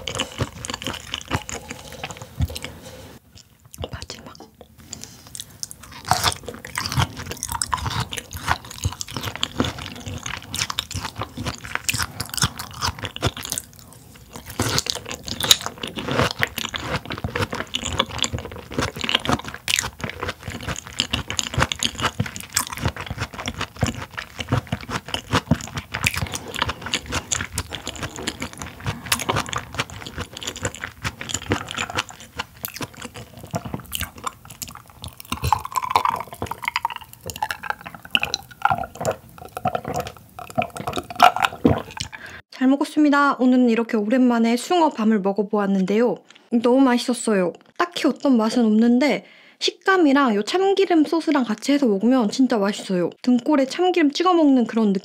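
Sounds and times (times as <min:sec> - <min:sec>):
wet crunchy chewing: 0:00.0 - 0:04.0, 0:04.8 - 0:42.4.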